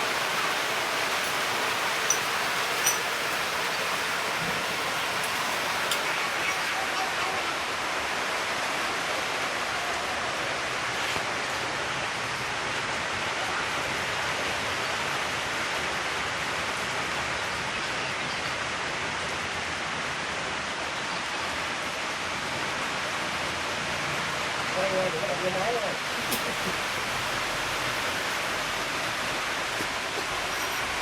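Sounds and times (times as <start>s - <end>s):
welding torch flame hissing: 26.0s - 31.0s.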